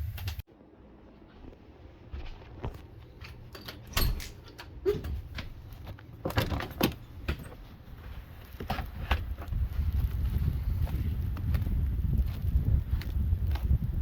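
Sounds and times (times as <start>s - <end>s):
wind noise on microphone: 0.0s - 0.4s, 7.2s - 14.0s.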